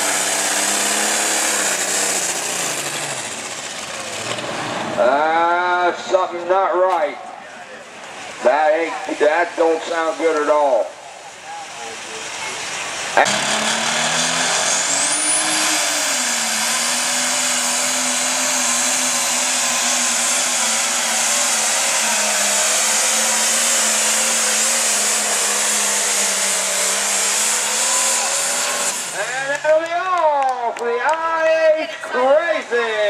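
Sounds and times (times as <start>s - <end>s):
diesel tractor engine droning: 0.0s - 33.0s
announcer speaking: 5.0s - 7.3s, 8.4s - 13.3s, 29.2s - 33.0s.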